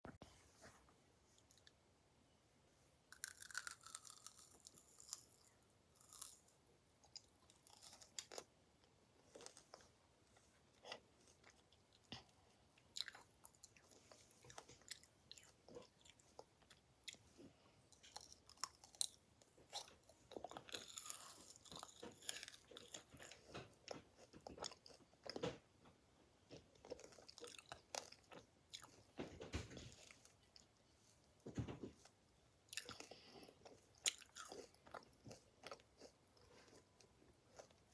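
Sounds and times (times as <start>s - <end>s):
chewing and crunching: 3.1s - 8.5s, 9.2s - 25.6s, 26.5s - 29.1s, 32.7s - 37.9s.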